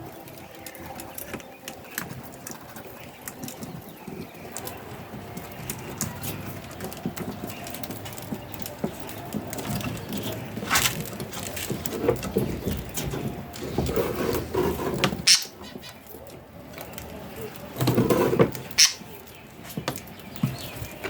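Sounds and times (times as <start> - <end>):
budgerigars scrabbling and pecking: 0.0 - 21.0.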